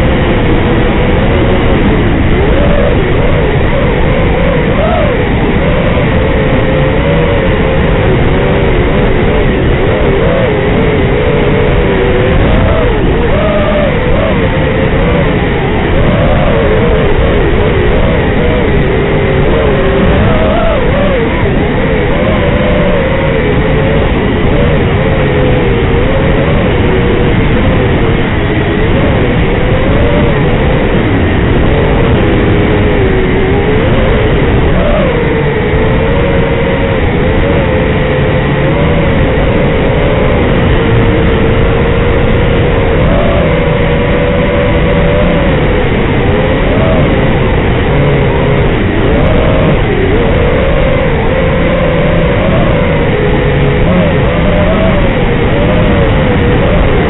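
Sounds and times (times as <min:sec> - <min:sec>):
quadcopter motors whining: 0:00.0 - 0:28.1
steady rushing noise: 0:00.0 - 0:57.0.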